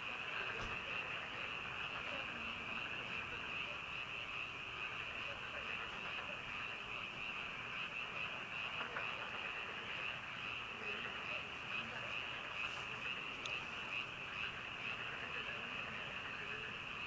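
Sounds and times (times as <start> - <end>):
chorus of frogs calling: 0.0 - 17.0.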